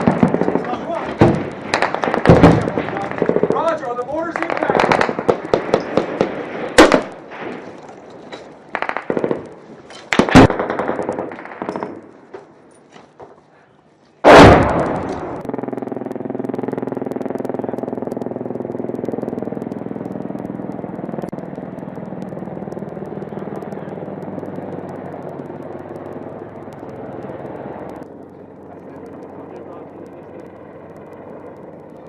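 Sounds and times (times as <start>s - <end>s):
loud blast: 0.0s - 3.6s, 14.2s - 18.1s
helicopter engines and rotor drone: 0.0s - 10.4s, 14.6s - 32.0s.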